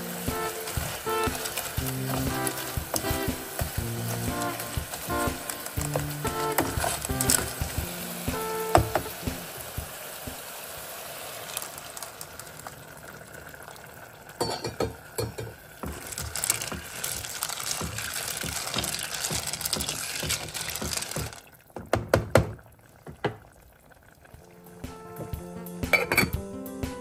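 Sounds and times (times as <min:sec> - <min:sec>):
snails sizzling in a pot: 0:00.0 - 0:21.6
spoon knocking on pot: 0:00.2 - 0:10.4, 0:14.4 - 0:16.1, 0:25.2 - 0:26.4.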